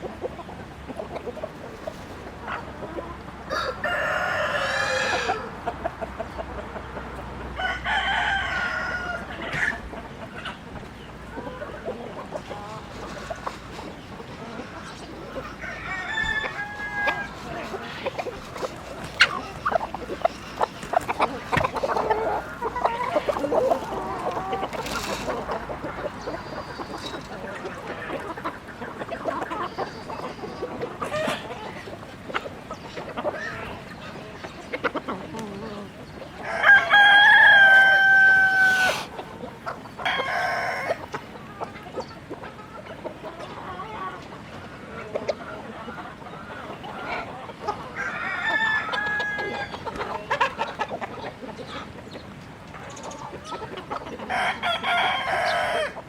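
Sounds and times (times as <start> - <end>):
chickens clucking: 0.0 - 56.0
rooster crowing: 3.5 - 5.5, 7.6 - 9.7, 15.6 - 17.9, 36.4 - 39.0, 40.0 - 41.0, 48.0 - 49.8, 54.3 - 56.0.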